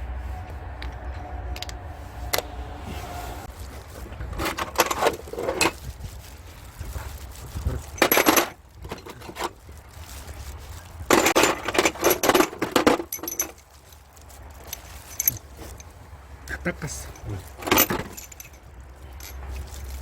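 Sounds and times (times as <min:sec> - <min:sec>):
metal tools clinking: 0:03.7 - 0:16.0, 0:16.8 - 0:20.0.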